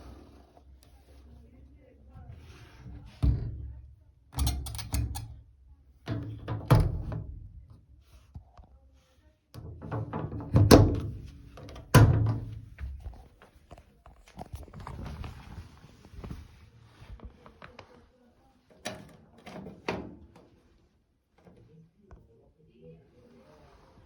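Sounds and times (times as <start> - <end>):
washing machine thudding: 2.9 - 5.4, 6.1 - 7.7, 9.6 - 13.0.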